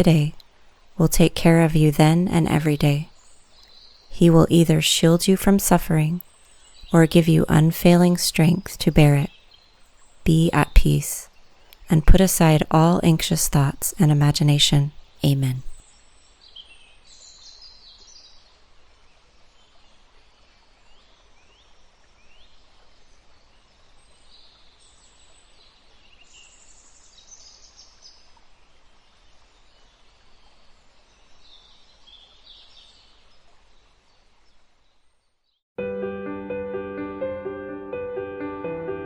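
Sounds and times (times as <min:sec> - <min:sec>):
light breeze hiss: 0:00.0 - 0:13.9.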